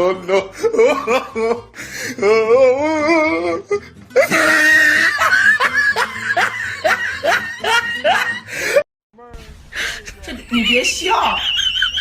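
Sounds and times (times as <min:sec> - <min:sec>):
background music: 0:00.0 - 0:12.0
person laughing: 0:04.2 - 0:08.8, 0:09.8 - 0:12.0.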